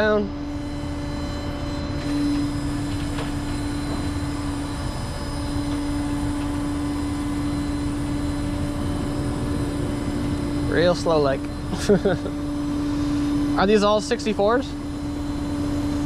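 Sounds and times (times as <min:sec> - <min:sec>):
hydraulic whine: 0:00.0 - 0:16.0
truck engine running: 0:00.9 - 0:16.0.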